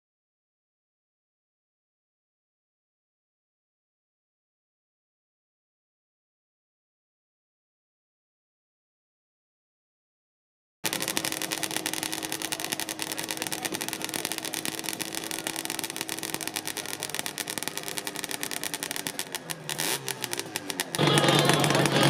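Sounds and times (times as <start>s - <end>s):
motorcycle exhaust pulsing: 10.8s - 22.0s.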